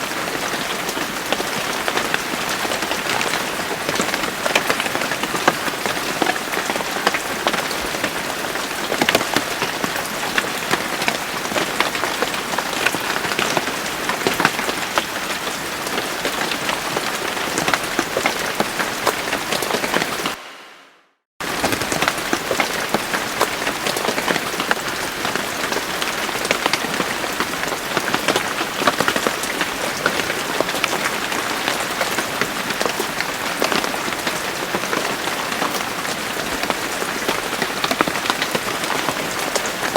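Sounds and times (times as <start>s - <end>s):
rain drops pattering: 0.0s - 20.4s, 21.4s - 39.9s.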